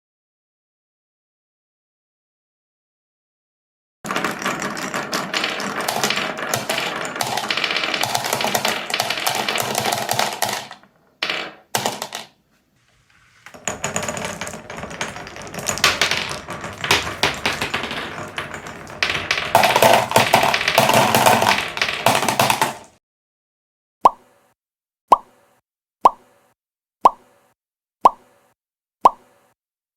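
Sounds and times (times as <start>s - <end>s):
marbles rattling through wooden blocks: 4.1s - 23.0s.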